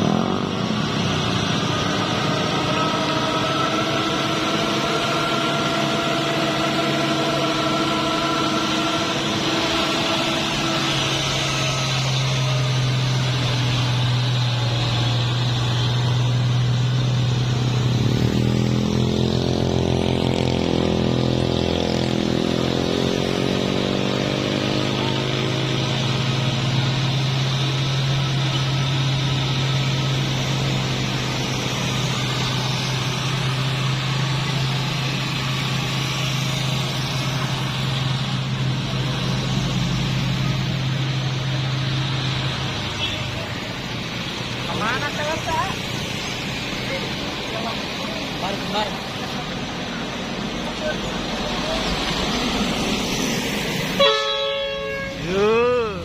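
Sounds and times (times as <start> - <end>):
low diesel engine drone: 0.0 - 56.0
truck engine passing by: 0.0 - 56.0.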